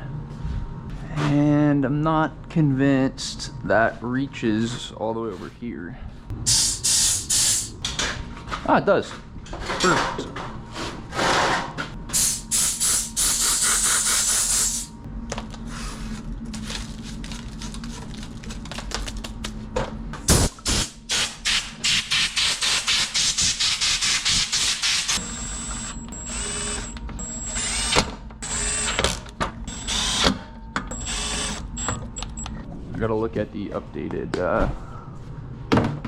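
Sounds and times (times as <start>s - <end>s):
vacuum cleaner running: 24.8s - 32.5s.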